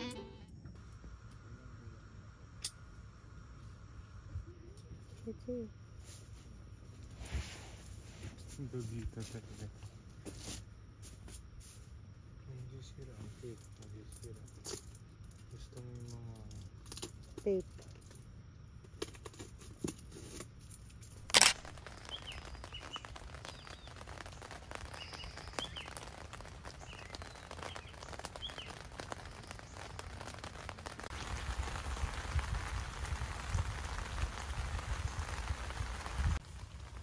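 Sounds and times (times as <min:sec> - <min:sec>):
rain on a tent: 0:12.5 - 0:17.9, 0:19.6 - 0:37.0
birds chirping: 0:21.4 - 0:31.4.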